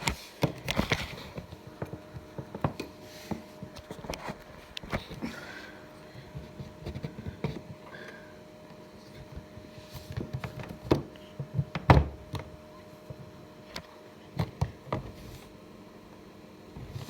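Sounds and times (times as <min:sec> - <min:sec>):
tumble dryer humming: 0:00.0 - 0:17.0
knocks and thumps in dryer: 0:10.3 - 0:12.5.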